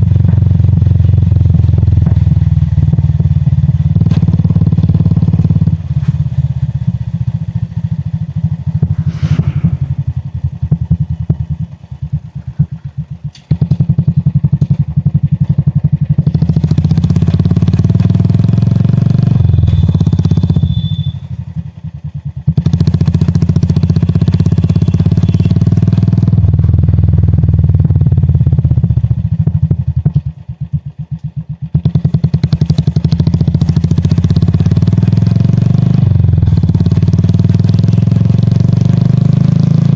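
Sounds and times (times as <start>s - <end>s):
motorcycle engine thumping: 0.0s - 35.6s.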